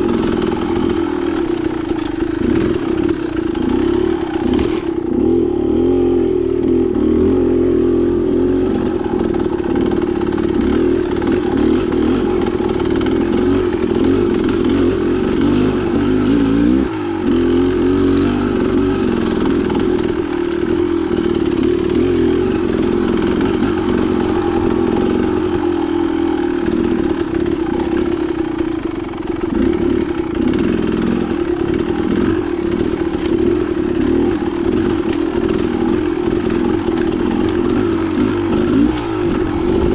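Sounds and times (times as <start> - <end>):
clatter: 0.0 - 5.5, 8.6 - 39.9
dirt bike engine under throttle: 0.0 - 39.9.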